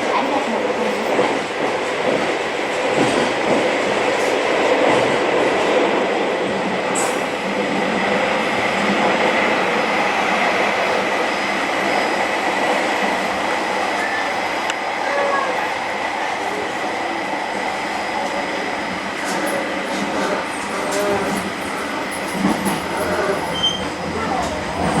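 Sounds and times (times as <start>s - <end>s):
train rolling rumble: 0.0s - 25.0s.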